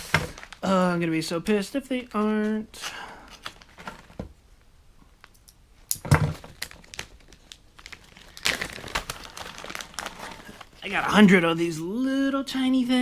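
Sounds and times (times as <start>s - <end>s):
plastic packaging crinkling and tearing: 0.0s - 0.7s, 3.3s - 4.2s, 6.2s - 11.2s.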